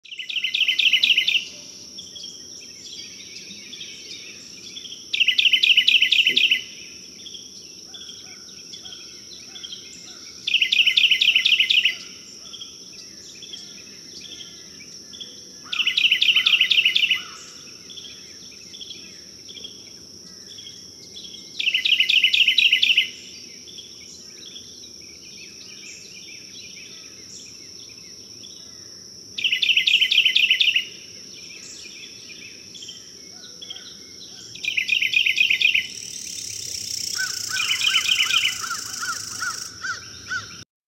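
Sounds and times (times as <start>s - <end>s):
high insect drone: 0.1s - 40.6s
bird rapid trill: 34.7s - 40.6s.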